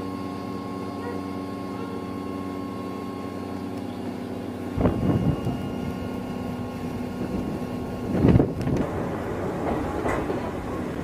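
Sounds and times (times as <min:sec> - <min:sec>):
railcar equipment hum: 0:00.0 - 0:11.0.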